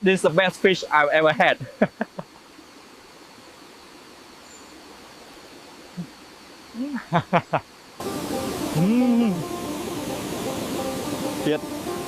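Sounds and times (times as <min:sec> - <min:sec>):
faint steady hiss: 0:00.0 - 0:12.0
short hum: 0:08.0 - 0:12.0
person's voice sounds: 0:08.8 - 0:09.5.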